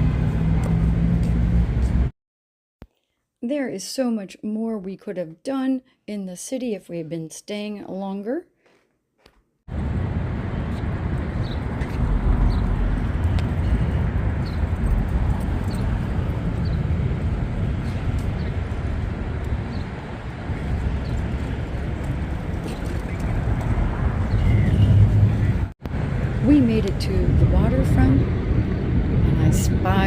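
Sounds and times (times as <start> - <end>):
city street traffic rumble: 0.0 - 2.1, 9.7 - 30.0.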